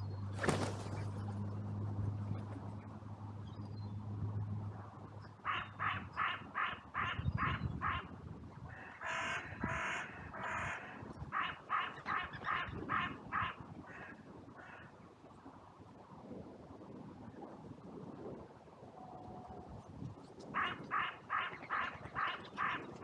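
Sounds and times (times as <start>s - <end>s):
crow cawing: 8.7s - 14.9s.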